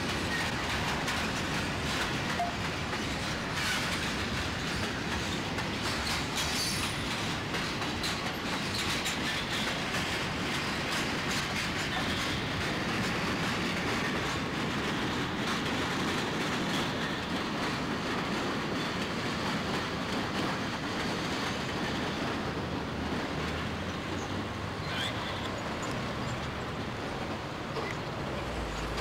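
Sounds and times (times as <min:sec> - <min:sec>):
railroad cars rumbling past: 0:00.0 - 0:29.0
wheels clacking over rail joints: 0:00.0 - 0:29.0
high wheel squeak: 0:24.2 - 0:25.9.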